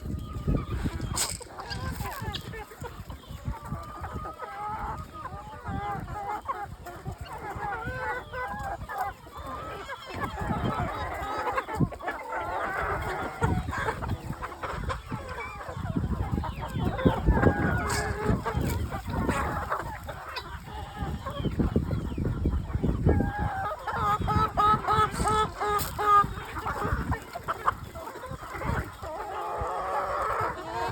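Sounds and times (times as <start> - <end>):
hens clucking: 0.0 - 30.9.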